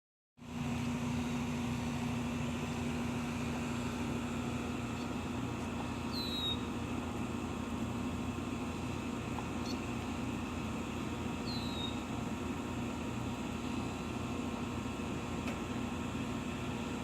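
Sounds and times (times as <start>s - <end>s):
low mechanical hum: 0.4s - 17.0s
small bird chirp: 6.1s - 6.7s, 9.6s - 9.9s, 11.4s - 12.1s.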